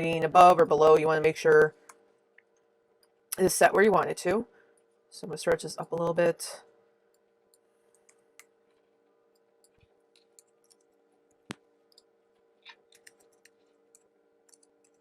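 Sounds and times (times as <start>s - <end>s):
faint steady hum: 0.0s - 15.0s
computer keyboard typing clicks: 12.9s - 15.0s.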